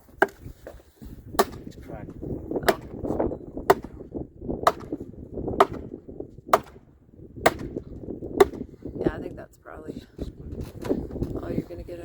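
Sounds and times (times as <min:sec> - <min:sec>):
post pounder striking fence post: 0:00.0 - 0:00.5, 0:01.3 - 0:01.7, 0:02.6 - 0:08.7.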